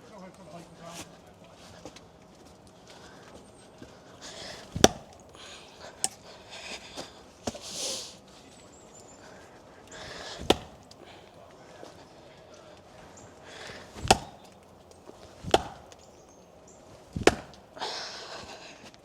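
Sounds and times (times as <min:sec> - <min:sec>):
rustling: 0:00.0 - 0:12.1, 0:12.7 - 0:19.0
rock knocking axe head: 0:04.6 - 0:05.2, 0:10.3 - 0:11.0, 0:14.0 - 0:14.6, 0:15.3 - 0:16.0, 0:17.2 - 0:17.7.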